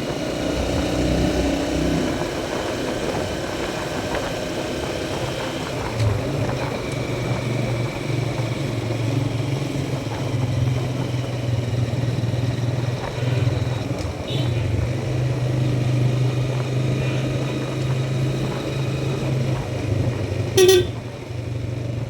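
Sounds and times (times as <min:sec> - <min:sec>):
motorcycle engine running: 0:00.0 - 0:22.0
road and wind noise: 0:00.0 - 0:22.0.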